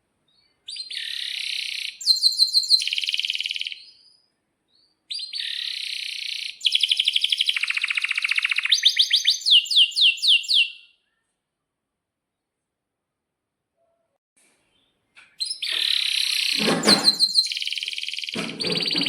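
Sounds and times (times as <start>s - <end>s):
canary singing: 0.7s - 11.0s, 15.3s - 19.0s.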